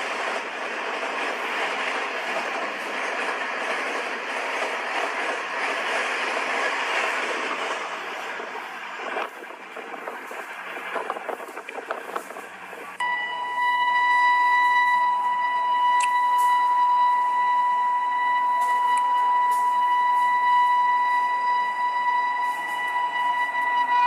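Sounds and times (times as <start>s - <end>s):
train clattering on rails: 0.0s - 13.0s
steady high-pitched tone: 1.7s - 24.0s.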